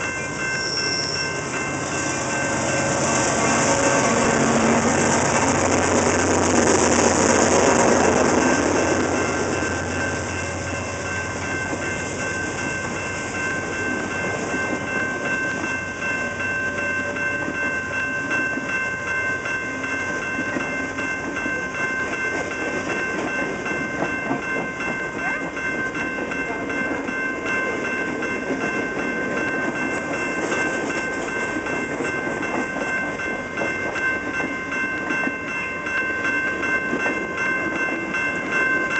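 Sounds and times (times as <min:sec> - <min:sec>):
train wheels clacking over rails: 0:00.0 - 0:16.2, 0:20.2 - 0:38.8
locomotive engine hum: 0:00.0 - 0:18.8
high ringing tones: 0:00.0 - 0:38.9.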